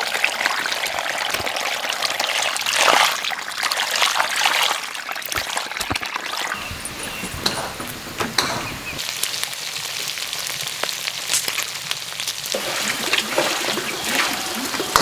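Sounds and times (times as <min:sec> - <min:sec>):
water trickling and pouring: 0:00.0 - 0:08.1, 0:12.6 - 0:15.0.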